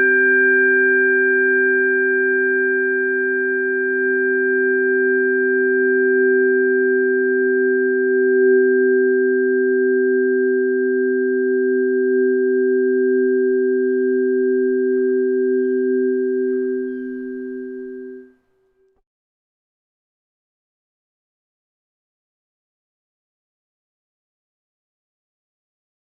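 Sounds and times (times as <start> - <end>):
tuning forks sustained tones: 0.0 - 18.9.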